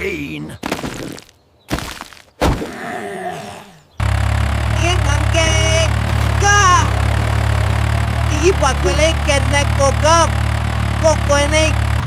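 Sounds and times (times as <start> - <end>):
cartoon tractor engine: 4.0 - 12.0.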